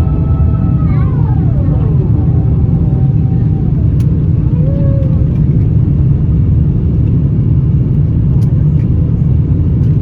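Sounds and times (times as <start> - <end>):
jet engine cabin rumble: 0.0 - 10.0.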